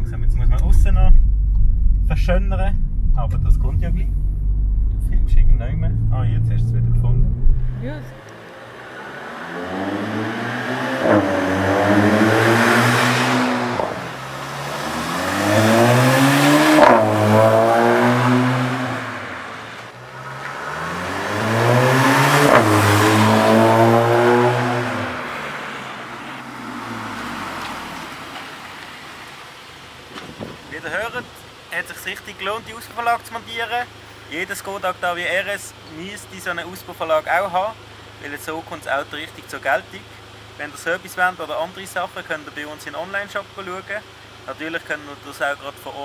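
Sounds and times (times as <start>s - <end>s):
car driving past accelerating: 0.0s - 28.4s.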